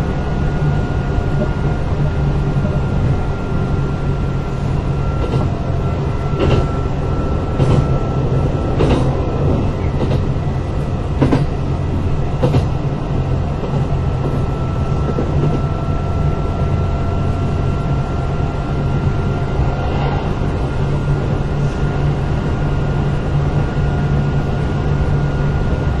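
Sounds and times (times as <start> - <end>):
thin steady whine: 0.0 - 12.3
electric train rumbling: 0.0 - 26.0.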